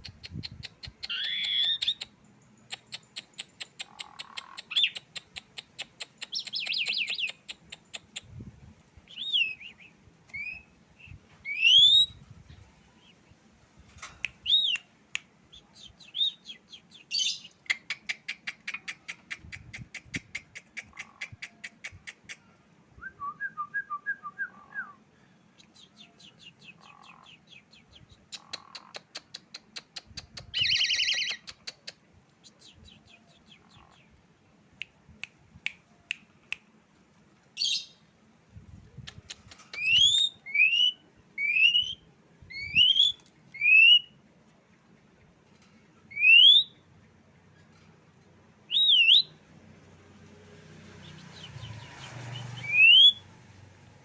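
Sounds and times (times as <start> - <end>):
bird song with rattles: 0.0 - 8.4, 10.3 - 14.8, 25.7 - 34.1, 39.0 - 40.8, 47.4 - 49.4
loud rising bird whistles: 51.6 - 53.3.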